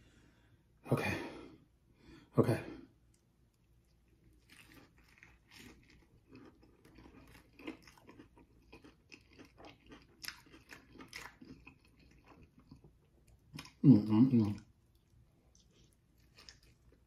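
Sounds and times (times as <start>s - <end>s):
person chewing crunchy food: 3.5s - 17.0s.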